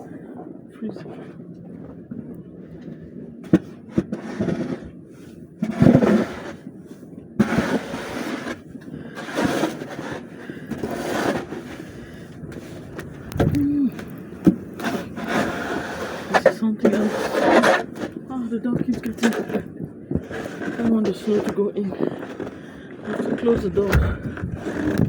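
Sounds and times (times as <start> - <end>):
low tone: 23.3 - 25.0.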